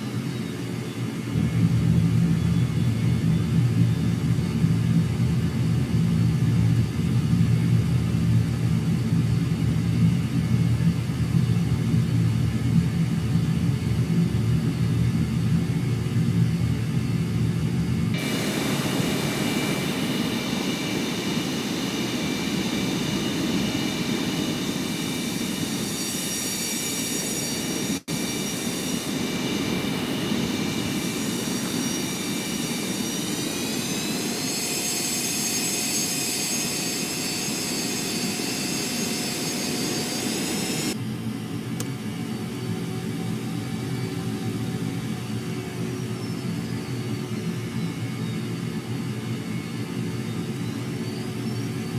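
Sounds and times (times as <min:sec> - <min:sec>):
high turbine whine: 0:00.0 - 0:41.5
jet engine rumble: 0:00.0 - 0:50.2.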